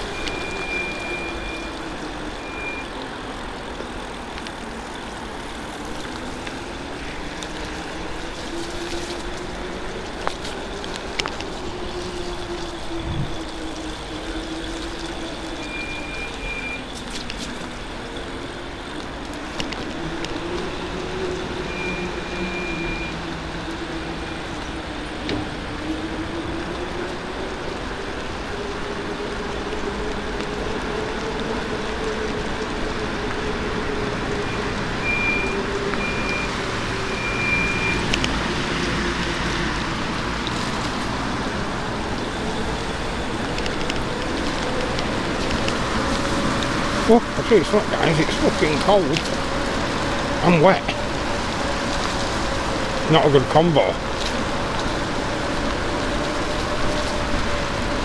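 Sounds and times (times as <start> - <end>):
wind and tyre noise: 0.0 - 58.0
short high beeps: 0.1 - 1.7, 35.1 - 36.5, 37.1 - 38.0.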